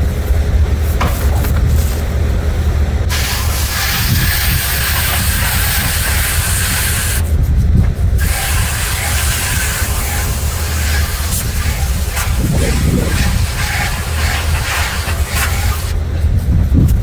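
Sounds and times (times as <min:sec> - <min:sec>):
low hum: 0:00.0 - 0:17.0
hose water spray hissing: 0:03.1 - 0:07.2, 0:08.2 - 0:16.0.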